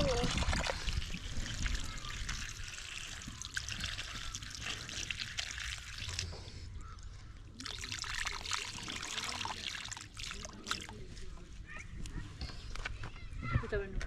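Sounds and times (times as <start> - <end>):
water pouring and trickling: 0.0 - 11.2.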